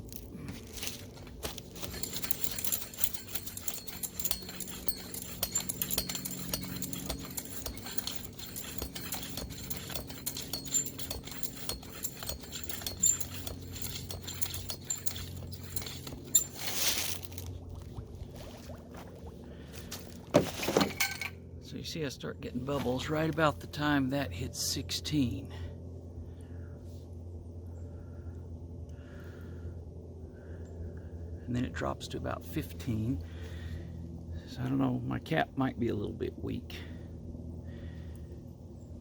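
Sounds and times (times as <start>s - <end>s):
air pump humming and ticking: 0.0s - 17.9s.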